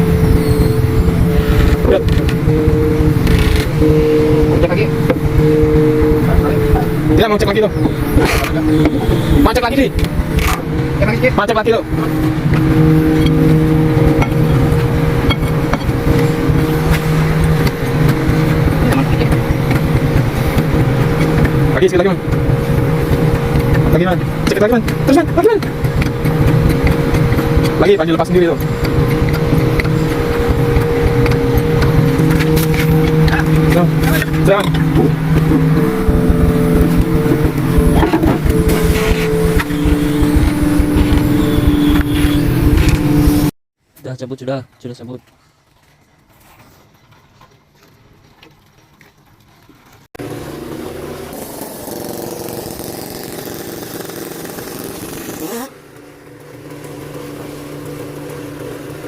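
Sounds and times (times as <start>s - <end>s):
engine running steadily: 0.0s - 43.5s, 49.6s - 59.0s
sharp clicks and knocks: 14.0s - 43.1s.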